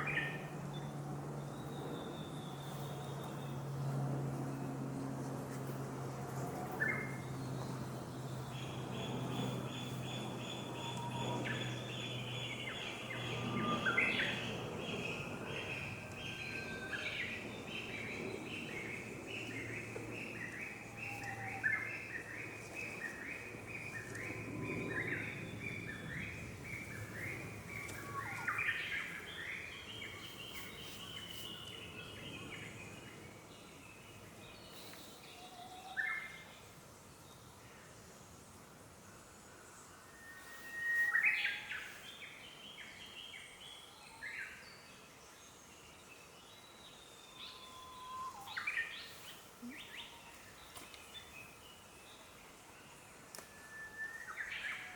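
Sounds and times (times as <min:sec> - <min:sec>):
birds whistling: 0:08.5 - 0:32.5, 0:40.2 - 0:41.9, 0:47.3 - 0:51.3.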